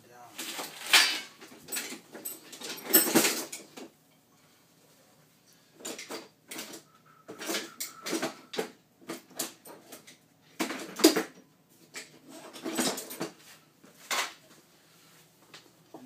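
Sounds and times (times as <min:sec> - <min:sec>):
cabinet parts knocking and scraping: 0:00.4 - 0:03.9, 0:05.8 - 0:14.4.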